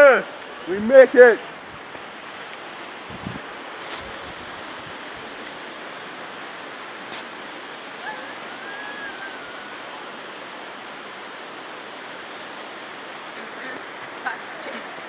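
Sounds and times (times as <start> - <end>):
waterfall rushing: 0.0 - 15.0
faint wavering whistle: 8.0 - 10.4.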